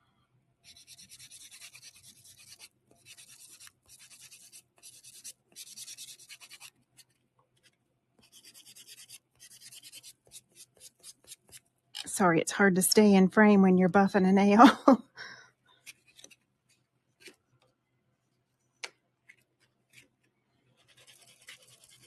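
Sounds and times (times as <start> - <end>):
nail buffer rubbing fingernail: 0.6 - 6.8, 7.6 - 11.6, 20.8 - 22.0.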